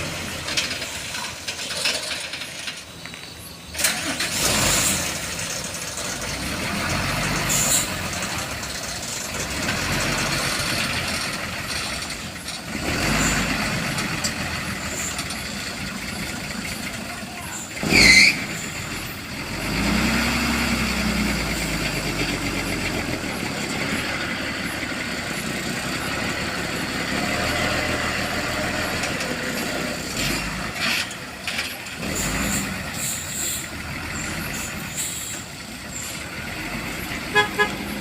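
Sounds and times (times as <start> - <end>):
heavy road traffic: 0.0 - 38.0
truck engines under load: 0.0 - 38.0
horn toots: 37.2 - 38.0.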